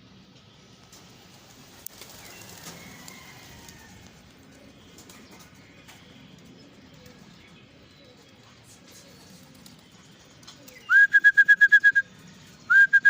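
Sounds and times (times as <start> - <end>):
pigeons cooing: 0.9 - 11.2.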